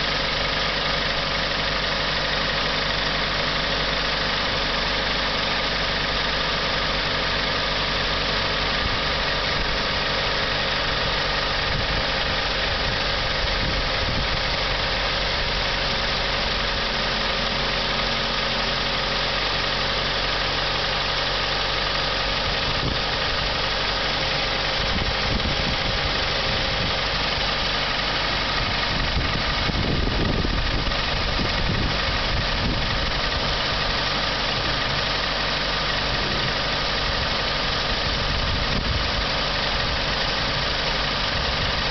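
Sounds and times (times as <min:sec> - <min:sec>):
car engine idling: 0:00.0 - 0:41.9
engine clicking knock: 0:18.4 - 0:41.9.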